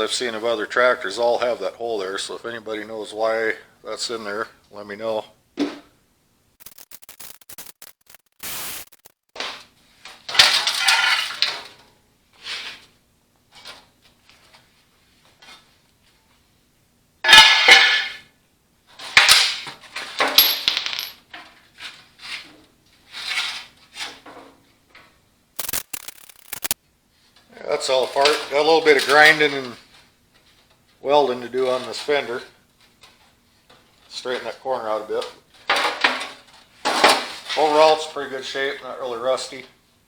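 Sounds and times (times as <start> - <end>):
metal pieces and tools clattering: 10.4 - 11.4, 20.2 - 21.2, 25.6 - 26.8.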